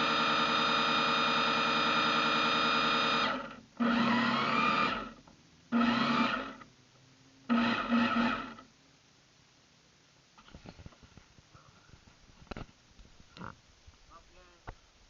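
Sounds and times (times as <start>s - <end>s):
motor throttle bursts: 0.0s - 6.6s, 7.5s - 8.6s
rc boat electric motor whining: 0.0s - 6.6s, 7.5s - 8.6s.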